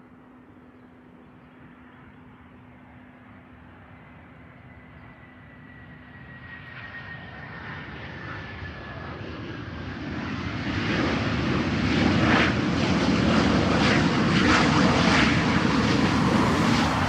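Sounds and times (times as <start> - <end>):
jet engines roaring: 5.2 - 17.0
high jet whine: 13.4 - 17.0.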